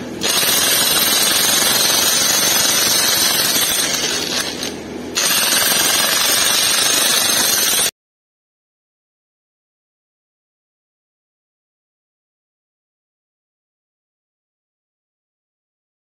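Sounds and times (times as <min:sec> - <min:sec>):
power tool hammering rapidly: 0:00.2 - 0:07.9.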